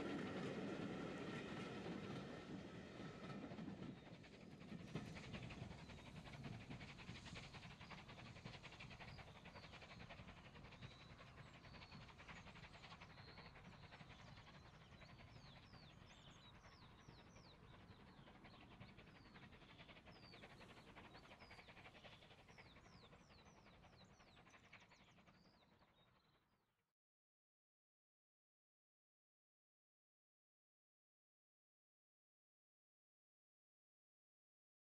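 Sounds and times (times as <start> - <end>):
train rumble: 0.0 - 24.3
faint birdsong: 3.8 - 26.4.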